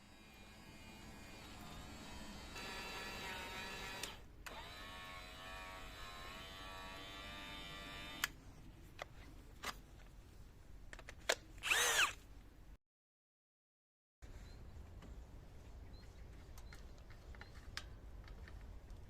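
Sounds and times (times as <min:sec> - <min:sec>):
small electric motor whining: 0:00.2 - 0:08.3, 0:11.6 - 0:12.2.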